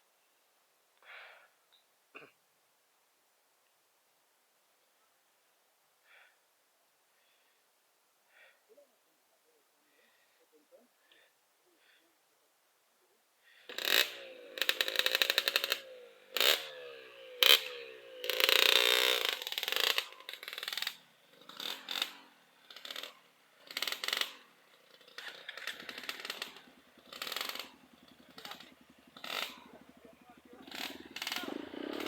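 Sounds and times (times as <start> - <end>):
motorcycle engine revving: 13.5 - 32.0.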